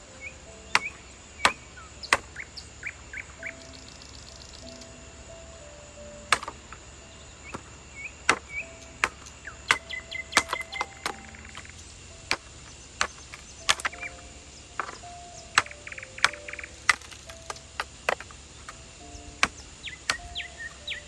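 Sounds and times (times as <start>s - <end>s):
birds chirping: 0.0s - 21.0s
chopping strikes: 0.7s - 2.5s, 6.3s - 6.8s, 7.5s - 14.2s, 14.8s - 18.8s, 19.4s - 20.8s.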